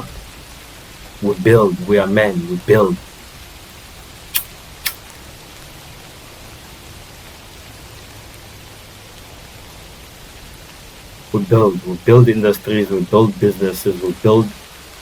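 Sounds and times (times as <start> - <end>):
background hiss: 0.0 - 15.0
short sharp clicks: 4.3 - 5.2.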